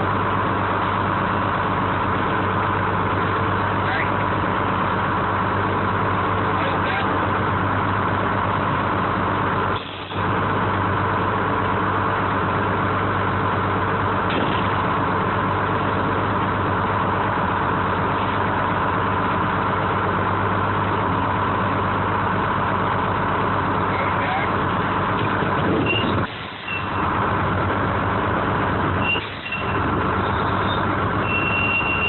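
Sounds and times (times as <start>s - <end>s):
crane engine running: 0.0s - 32.0s.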